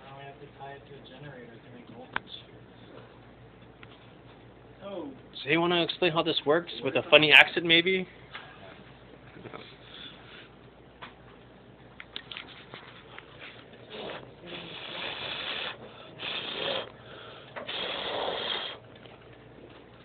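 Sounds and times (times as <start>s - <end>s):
person breathing noisily: 13.9s - 18.8s.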